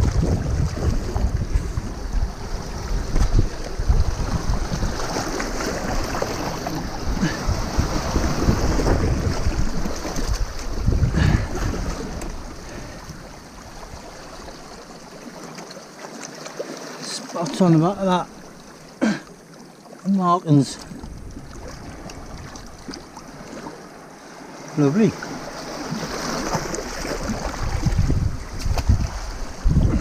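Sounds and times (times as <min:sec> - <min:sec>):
wind buffeting microphone: 0:00.0 - 0:14.5, 0:20.8 - 0:23.8, 0:25.3 - 0:30.0
sea waves washing on shore: 0:00.0 - 0:30.0.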